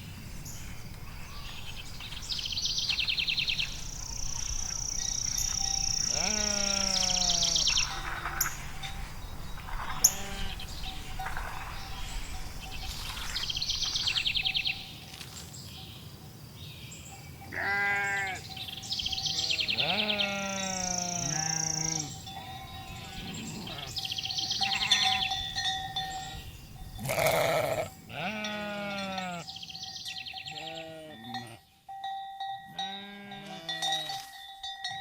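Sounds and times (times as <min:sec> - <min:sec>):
birds singing high trills: 0:00.0 - 0:15.0, 0:16.7 - 0:31.9
sheep bleating: 0:06.1 - 0:07.8, 0:10.0 - 0:10.6, 0:17.5 - 0:18.4, 0:19.4 - 0:24.0, 0:27.0 - 0:29.5, 0:30.5 - 0:31.6, 0:32.7 - 0:34.2.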